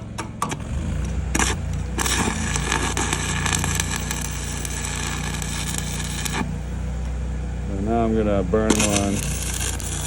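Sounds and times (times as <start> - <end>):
welder engine droning: 0.0 - 10.0
welding arc crackling: 0.6 - 6.8, 8.6 - 10.0.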